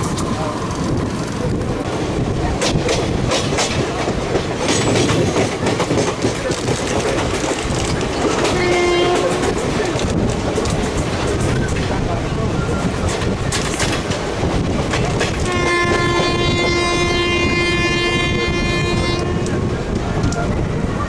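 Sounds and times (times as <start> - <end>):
train rumbling on rails: 0.0 - 21.0
train horn: 8.5 - 9.5, 15.4 - 19.7.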